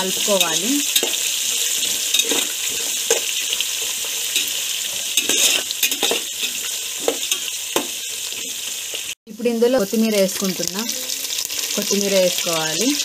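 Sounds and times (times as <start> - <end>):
food sizzling in hot oil: 0.0 - 13.0
metal spoon scraping pot: 0.1 - 3.4, 4.3 - 7.9.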